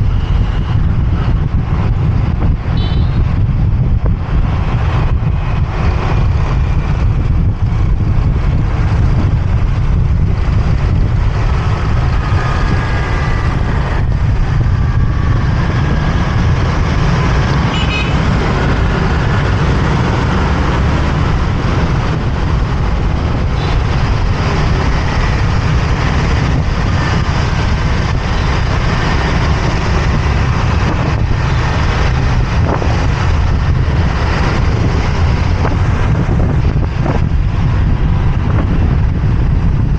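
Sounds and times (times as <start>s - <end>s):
motorbike engine rumble: 0.0s - 39.9s
surrounding vehicle engines: 0.0s - 39.9s
car horns tooting: 2.7s - 3.3s, 17.7s - 18.2s.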